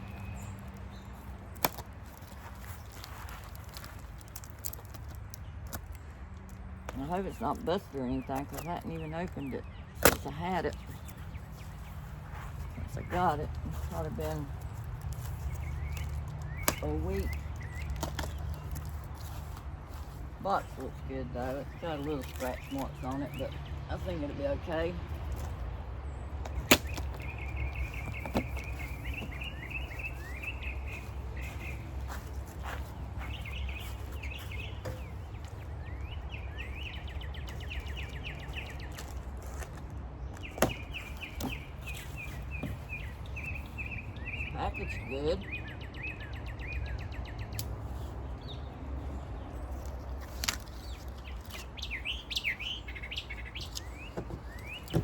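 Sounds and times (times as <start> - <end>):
small bird chirping: 6.9 - 39.6, 40.4 - 55.0.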